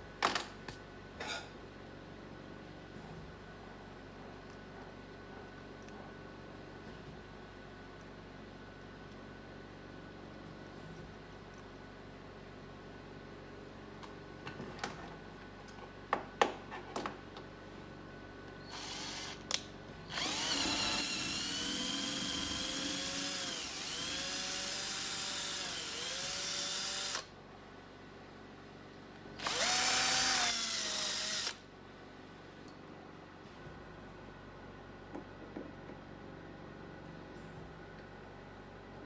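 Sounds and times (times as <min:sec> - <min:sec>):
electric drill whining: 0:18.7 - 0:19.4, 0:20.1 - 0:27.3, 0:29.4 - 0:31.6.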